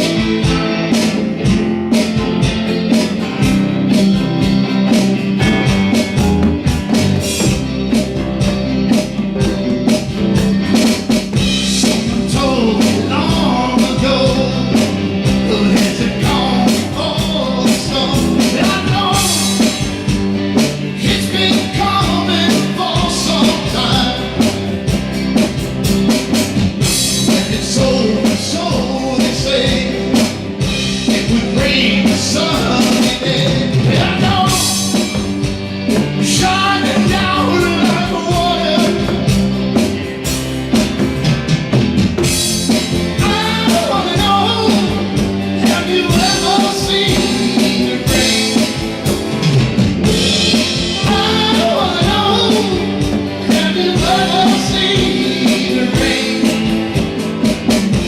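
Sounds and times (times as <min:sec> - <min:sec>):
rock song on drums and guitar: 0:00.0 - 0:58.0
person singing: 0:11.6 - 0:20.0, 0:20.9 - 0:24.7, 0:27.1 - 0:35.3, 0:35.9 - 0:39.4, 0:43.1 - 0:57.8.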